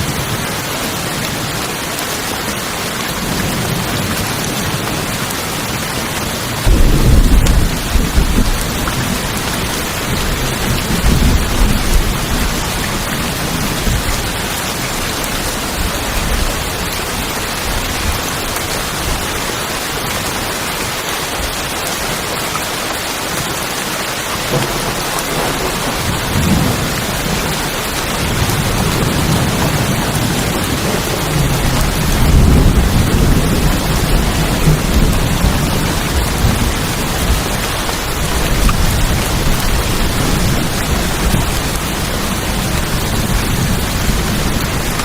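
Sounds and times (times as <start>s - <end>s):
rain drumming on tin roofs: 0.0s - 45.0s
thunder rumbling: 6.6s - 19.4s, 24.5s - 45.0s.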